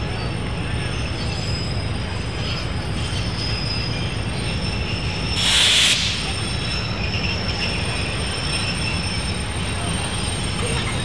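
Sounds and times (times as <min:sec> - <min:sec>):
train rumbling on rails: 0:00.0 - 0:11.0
loud hiss: 0:05.4 - 0:06.4.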